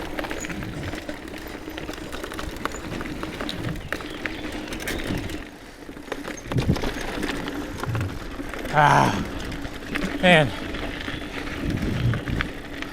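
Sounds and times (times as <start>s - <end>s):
chain and frame rattling: 0.0s - 5.5s
bike tyre noise on dirt: 0.0s - 12.9s.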